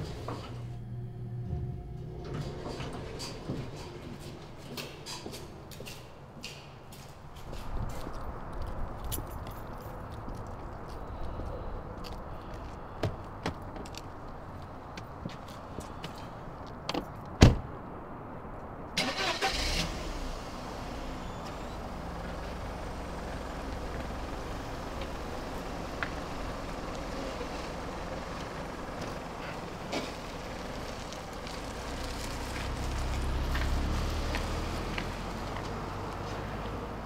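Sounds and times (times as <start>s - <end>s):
car engine starting and idling: 19.0s - 37.0s.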